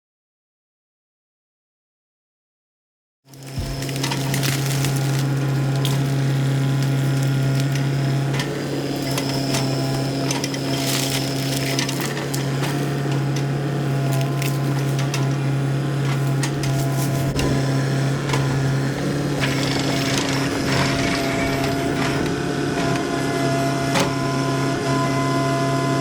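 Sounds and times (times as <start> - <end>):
earth-moving machine engine: 3.3 - 26.0.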